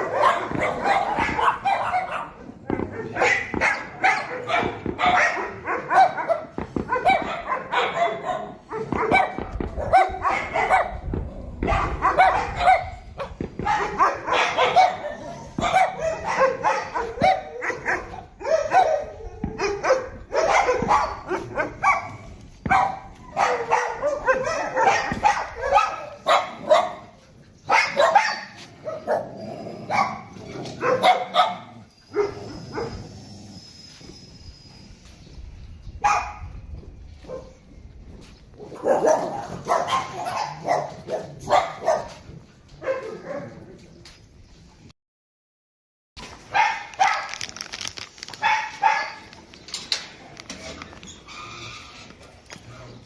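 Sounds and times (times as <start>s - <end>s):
many dogs barking: 0.0s - 33.1s, 36.0s - 36.5s, 37.2s - 37.6s, 38.6s - 43.9s, 46.5s - 47.5s, 48.4s - 49.3s.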